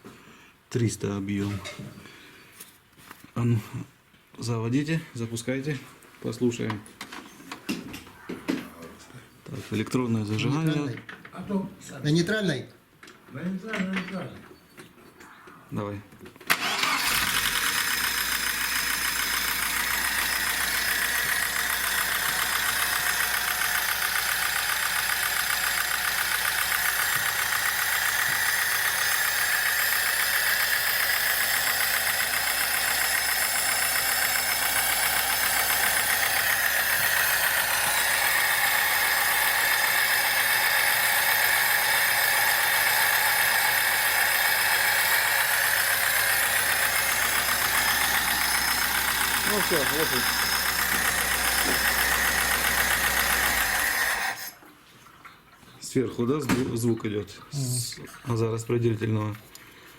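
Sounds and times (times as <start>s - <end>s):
car engine starting and idling: 16.5s - 54.5s
engine valve train knocking: 16.6s - 54.4s.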